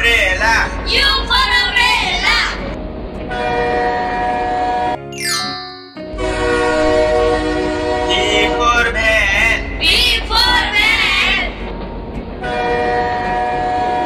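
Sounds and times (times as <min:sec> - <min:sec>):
train rumble: 0:00.0 - 0:05.0, 0:06.1 - 0:14.0
train horn: 0:03.3 - 0:05.0, 0:06.1 - 0:09.6, 0:12.4 - 0:14.0.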